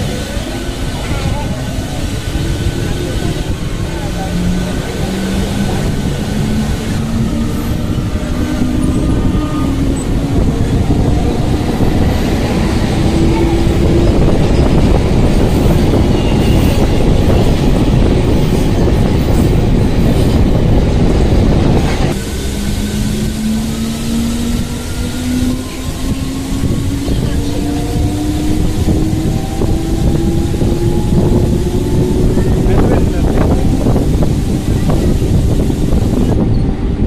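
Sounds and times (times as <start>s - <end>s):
rumble and rush of wheels: 0.0s - 37.0s.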